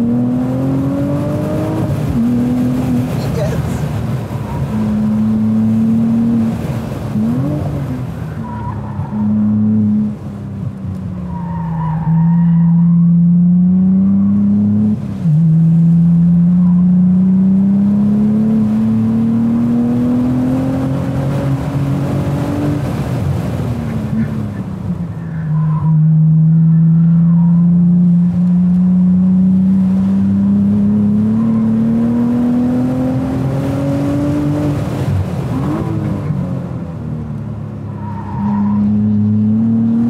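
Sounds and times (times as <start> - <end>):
car engine revving: 0.0 - 10.4, 11.4 - 23.5, 25.8 - 40.0
tire squeal: 4.3 - 4.8, 8.3 - 9.4, 11.2 - 13.1, 23.8 - 27.8, 37.9 - 39.2.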